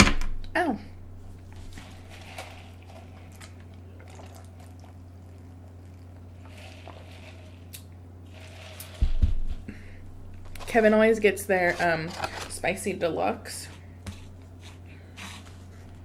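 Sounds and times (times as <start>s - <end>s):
low electrical hum: 0.0s - 16.0s
wet chewing sounds: 1.5s - 9.0s.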